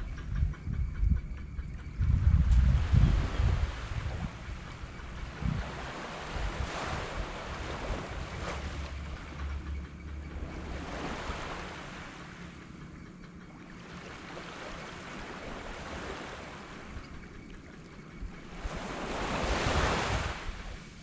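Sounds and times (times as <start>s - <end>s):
low hum: 0.0s - 18.8s
small waves breaking on beach: 5.3s - 8.9s, 13.8s - 17.0s, 18.4s - 21.0s.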